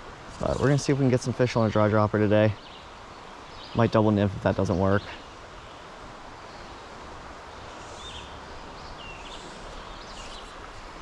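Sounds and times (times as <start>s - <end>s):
stream flowing: 0.0s - 11.0s
bird chirps: 7.7s - 10.6s.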